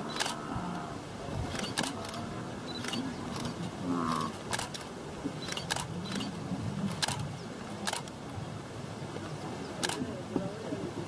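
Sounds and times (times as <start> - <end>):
camera shutter clicking: 0.1 - 0.4, 1.5 - 3.5, 4.5 - 6.3, 7.0 - 7.2, 7.9 - 8.1.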